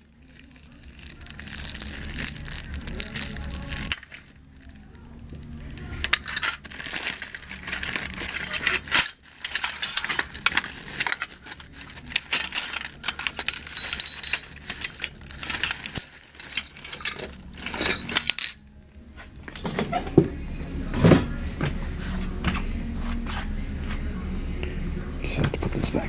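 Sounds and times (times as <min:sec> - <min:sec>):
small metal hardware clinking: 0:12.1 - 0:18.6.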